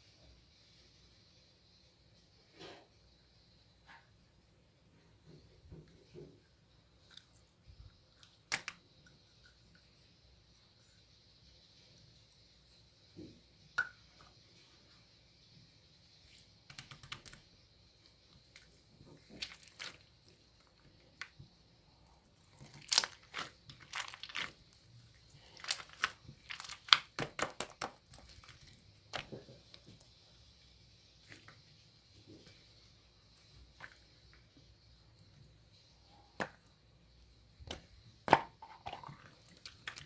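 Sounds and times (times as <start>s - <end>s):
crinkling and clicking handling noise: 18.3s - 21.5s, 22.4s - 30.1s, 39.0s - 40.0s.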